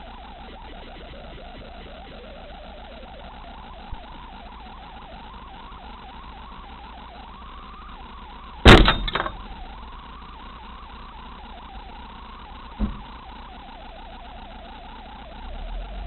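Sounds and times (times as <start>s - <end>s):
engine and road noise: 0.0s - 16.0s
car collision impact: 8.7s - 9.5s, 12.8s - 13.1s.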